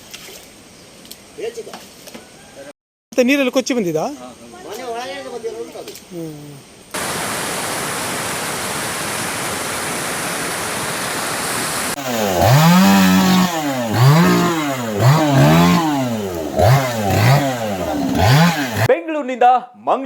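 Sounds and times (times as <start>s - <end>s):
floodwater rushing: 7.0s - 18.9s
chainsaw revving: 11.9s - 18.9s.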